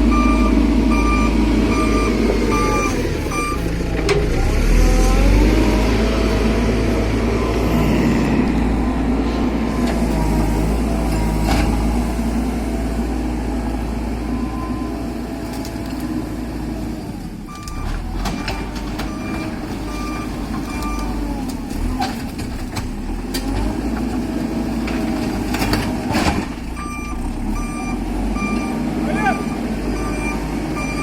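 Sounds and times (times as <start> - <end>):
reversing alarm beeping: 0.0 - 5.7, 7.2 - 10.8, 17.5 - 21.4, 26.8 - 31.0
heavy diesel machinery running: 0.0 - 31.0.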